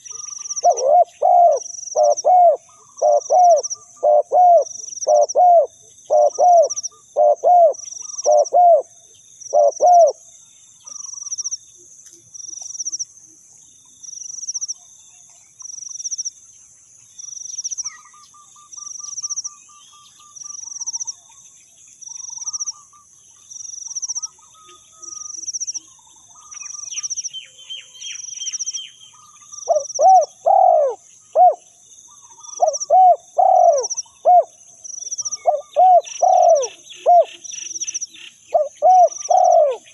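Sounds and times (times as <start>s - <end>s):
dove cooing: 0.0s - 10.2s, 29.7s - 31.6s, 32.3s - 39.9s
faint bird chirps: 0.0s - 39.9s.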